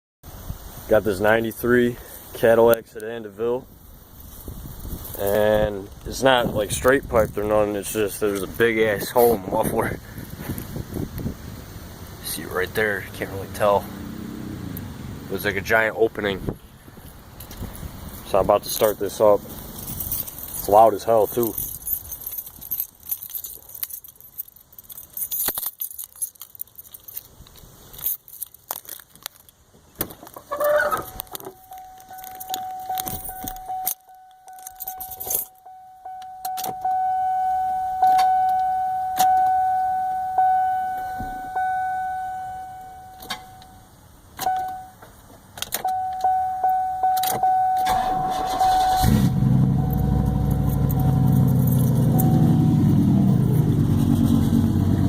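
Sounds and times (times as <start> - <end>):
keys jangling: 17.0 - 29.6, 30.8 - 35.7, 49.7 - 53.6
car warning chime: 31.0 - 45.0, 45.8 - 53.5
engine starter cranking: 47.8 - 52.8
loud deep car engine running: 47.9 - 55.0.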